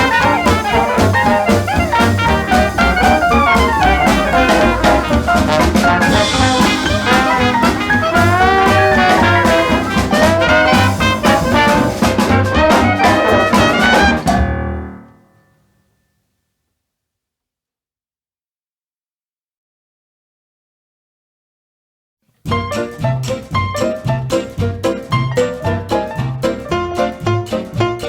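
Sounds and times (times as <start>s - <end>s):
swing jazz brass band: 0.0s - 15.0s, 22.5s - 28.0s.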